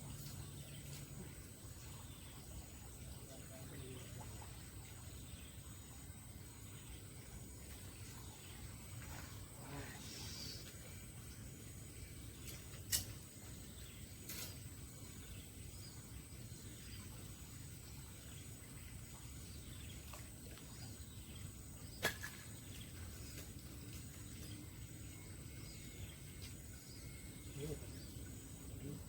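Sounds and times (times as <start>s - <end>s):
steady high-pitched whine: 0.0s - 20.3s, 23.0s - 29.0s
faint chirps: 7.6s - 14.6s, 23.2s - 29.0s.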